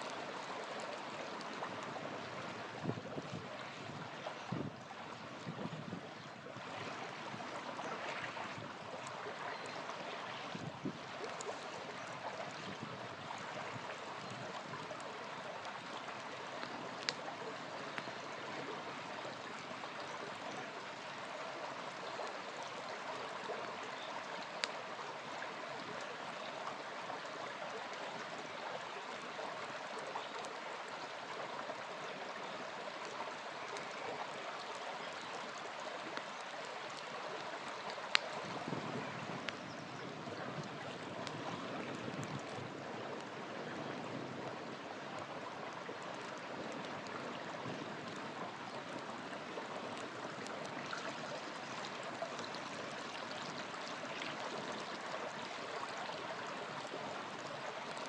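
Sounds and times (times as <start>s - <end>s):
river flowing: 0.0s - 58.0s
campfire popping: 13.8s - 18.3s, 36.1s - 39.6s.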